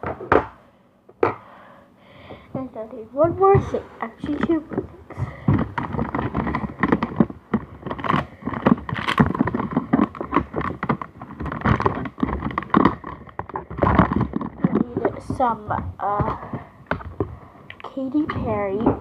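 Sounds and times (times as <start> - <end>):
objects rummaged through: 2.6 - 17.4.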